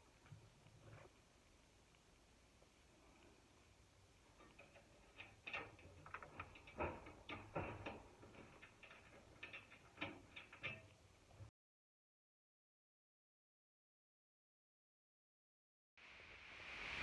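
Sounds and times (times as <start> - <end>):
metal parts clicking and tapping: 4.3 - 11.4.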